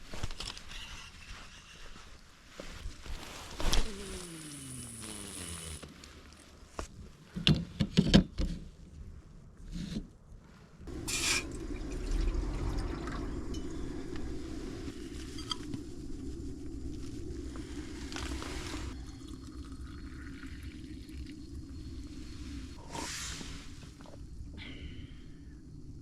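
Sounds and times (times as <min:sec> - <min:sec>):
water rushing: 0:10.9 - 0:14.9.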